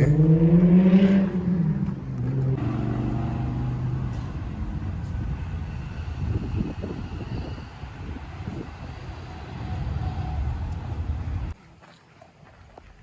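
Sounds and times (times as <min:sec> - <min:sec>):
car engine hum: 0:00.0 - 0:07.0
road rumbling noise: 0:00.0 - 0:11.6.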